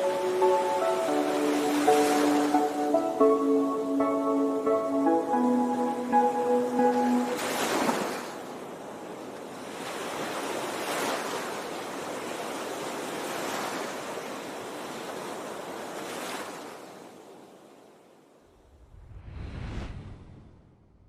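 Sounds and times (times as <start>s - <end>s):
steady rushing noise: 18.6s - 21.0s.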